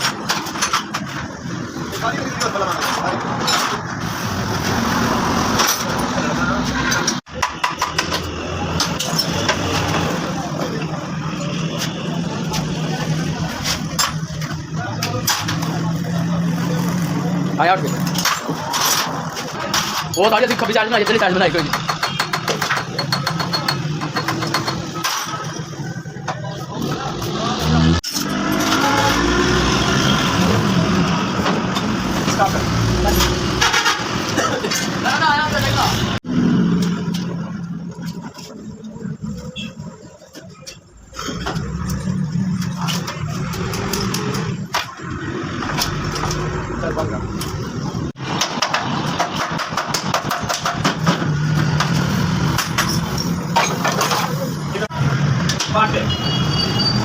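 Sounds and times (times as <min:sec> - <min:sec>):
sharp irregular clicks and knocks: 0:18.0 - 0:25.4, 0:48.2 - 0:54.4.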